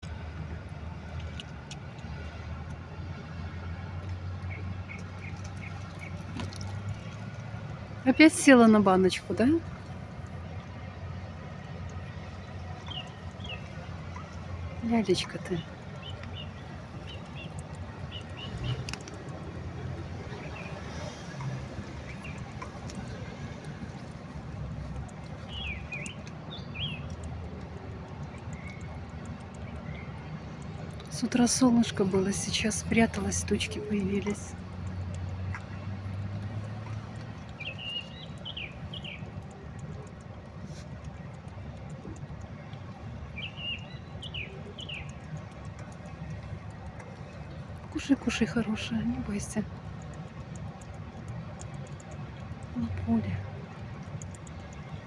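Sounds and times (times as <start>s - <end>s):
low outdoor rumble: 0.0s - 55.0s
faint clicks: 9.7s - 48.0s, 49.0s - 55.0s
bird chirps: 12.8s - 14.3s, 15.4s - 19.0s, 25.4s - 27.2s, 37.4s - 40.0s, 43.4s - 45.3s.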